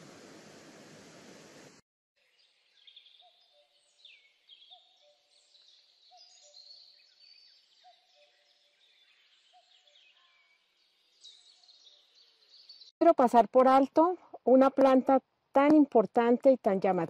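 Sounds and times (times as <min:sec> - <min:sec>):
steady hiss: 0:00.0 - 0:01.8.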